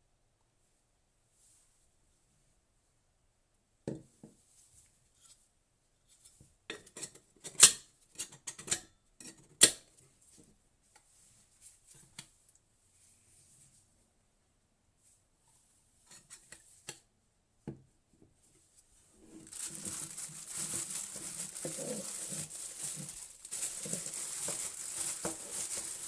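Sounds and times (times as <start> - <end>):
kettle parts clicking and clinking: 19.3 - 26.0.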